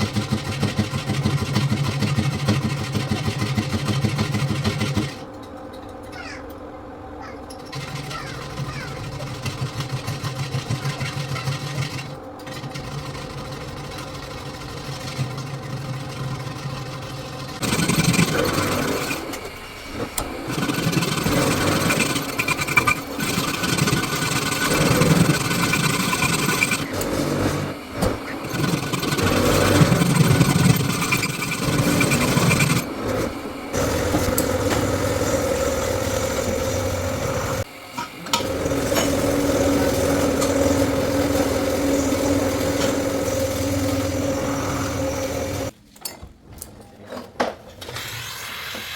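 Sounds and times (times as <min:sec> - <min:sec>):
metal lathe motor hum: 0:11.4 - 0:45.7
lathe tool rasping as it cuts: 0:17.5 - 0:37.7, 0:38.4 - 0:45.7.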